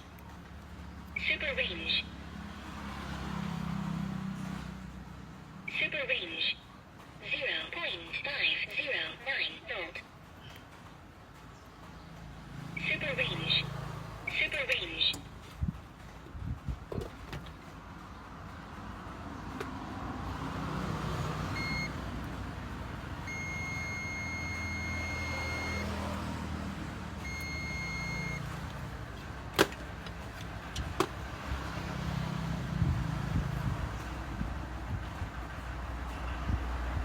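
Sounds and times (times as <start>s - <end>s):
road traffic rumble: 0.0s - 37.0s
multimeter beeping: 21.5s - 22.0s, 23.2s - 26.1s, 27.2s - 28.5s.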